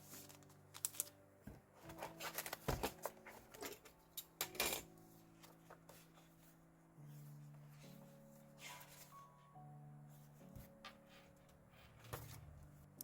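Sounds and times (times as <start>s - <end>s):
faint background music: 0.0s - 13.0s
paper rustling and clicks: 0.1s - 1.2s, 1.8s - 4.8s.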